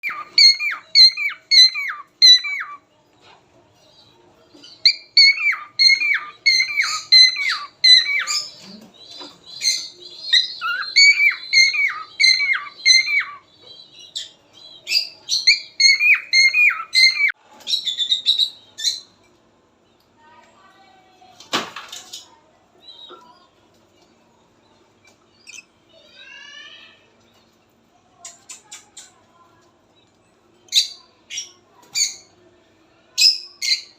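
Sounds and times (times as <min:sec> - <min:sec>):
cockatiels squawking chirps: 0:00.0 - 0:02.8, 0:04.8 - 0:08.7, 0:09.6 - 0:13.4, 0:15.5 - 0:17.3.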